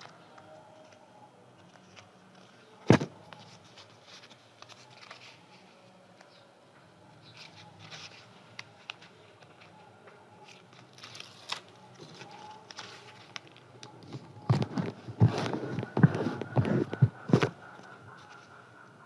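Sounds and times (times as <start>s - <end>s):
paper crinkling and knocks: 7.4s - 18.4s.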